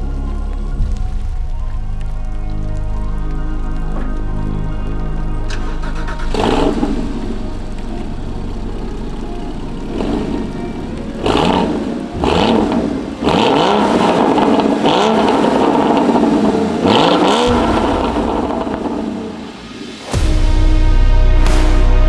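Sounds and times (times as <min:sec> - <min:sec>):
sports car engine revving: 0:04.8 - 0:22.0.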